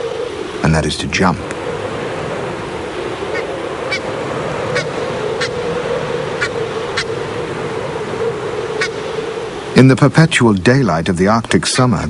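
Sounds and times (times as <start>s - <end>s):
geese calling: 3.0s - 9.5s.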